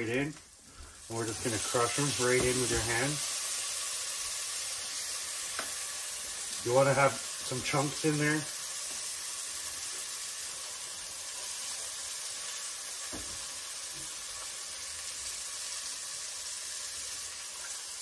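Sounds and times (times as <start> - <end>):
food sizzling in a pot: 0.0 - 18.0.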